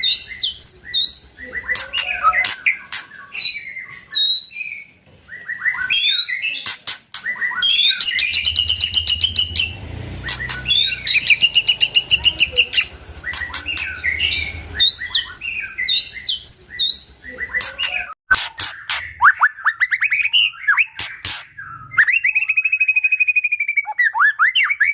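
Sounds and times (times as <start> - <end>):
rapid rattling bird trills: 0.0 - 4.4, 6.1 - 23.0
bird singing whistled notes: 0.0 - 24.9
sharp clicks: 6.6 - 7.3, 8.0 - 12.1, 12.7 - 14.1, 21.0 - 21.5.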